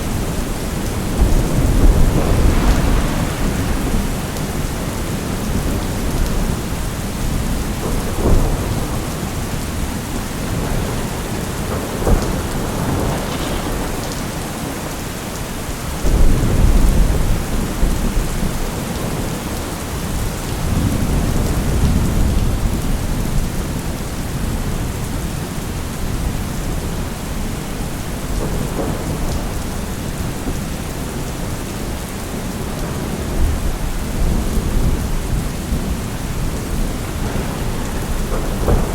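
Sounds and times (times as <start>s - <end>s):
distant thunder rumbling: 0.0s - 24.6s, 26.0s - 38.9s
rain pouring: 0.0s - 38.9s.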